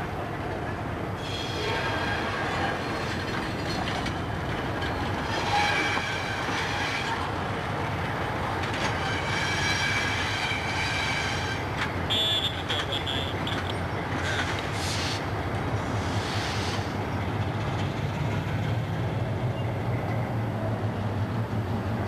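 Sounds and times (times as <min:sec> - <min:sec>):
train coaches rumbling past: 0:00.0 - 0:22.0
high-pitched wheel squeal: 0:05.3 - 0:07.2, 0:09.0 - 0:13.3.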